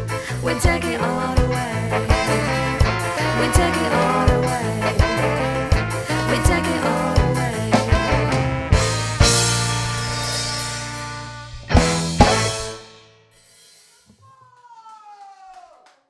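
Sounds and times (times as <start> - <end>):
instrumental ska band music: 0.0 - 13.9
drum hits: 11.7 - 13.0.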